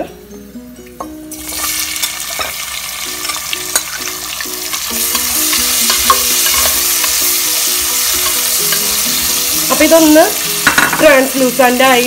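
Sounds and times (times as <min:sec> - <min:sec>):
onions sizzling in hot oil: 0:00.8 - 0:12.0
spoon stirring and clicking on pot: 0:04.9 - 0:07.2.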